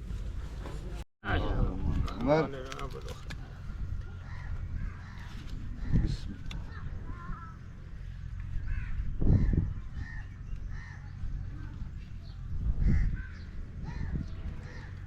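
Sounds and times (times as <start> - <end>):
birds calling: 2.2 - 15.0.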